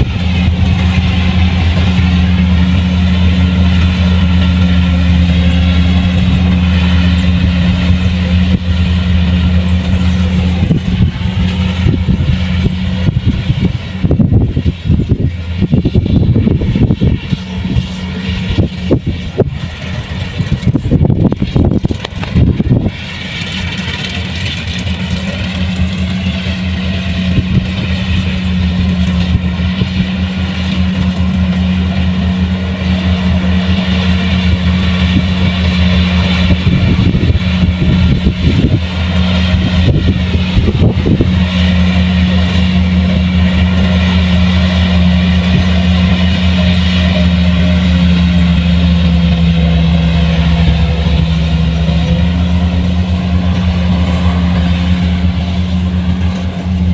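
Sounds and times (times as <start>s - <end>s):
diesel engine humming: 0.0s - 56.9s
rough uneven noise: 0.0s - 56.9s.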